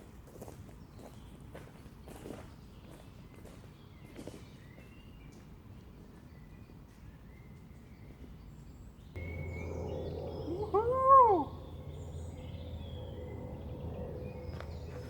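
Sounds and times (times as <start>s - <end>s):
animal meow-like call: 10.5s - 11.7s.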